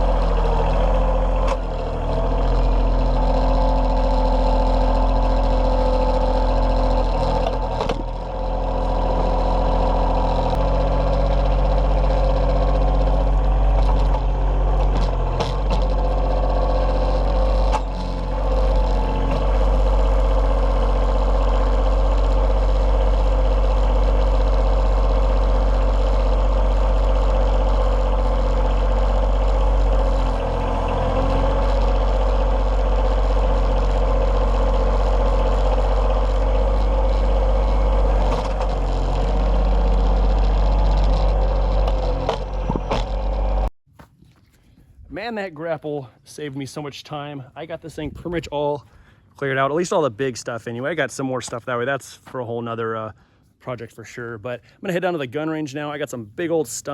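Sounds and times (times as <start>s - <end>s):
diesel tractor engine running: 0.0s - 43.7s.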